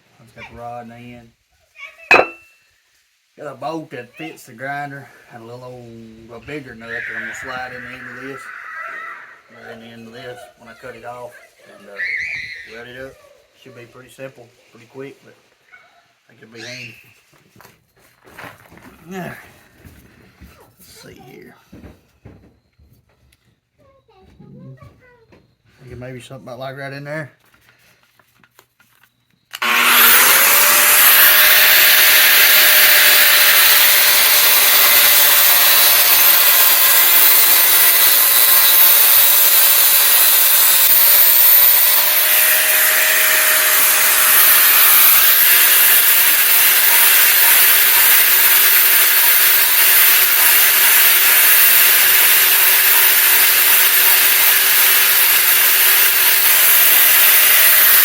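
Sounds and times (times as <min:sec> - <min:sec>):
angle grinder cutting steel: 0:02.1 - 0:02.5, 0:29.6 - 0:58.0.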